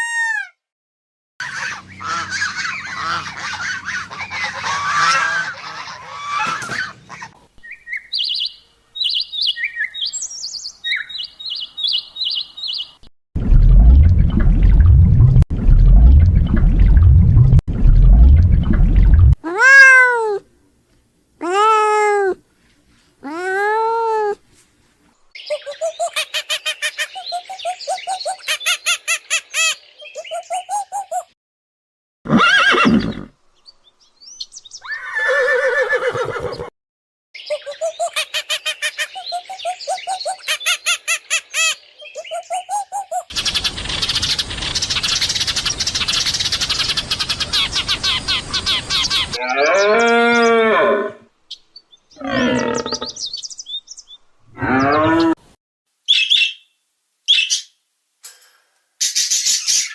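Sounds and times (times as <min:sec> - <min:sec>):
deep pulsing growl: 0:13.4 - 0:19.4
animal calls rising and falling: 0:19.4 - 0:20.4, 0:21.4 - 0:22.4, 0:23.2 - 0:24.4, 0:34.8 - 0:36.7, 0:52.2 - 0:53.2, 0:54.5 - 0:55.5.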